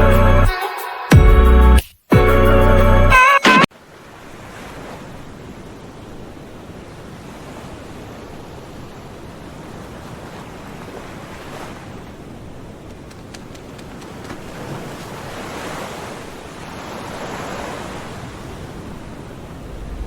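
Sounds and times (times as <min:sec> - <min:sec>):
background music: 0:00.0 - 0:03.7.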